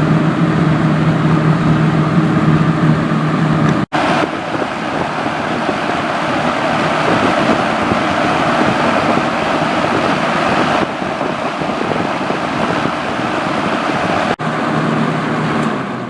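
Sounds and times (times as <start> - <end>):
low motor hum: 0.0 - 3.8, 13.9 - 16.0
box fan air rush: 0.0 - 16.0.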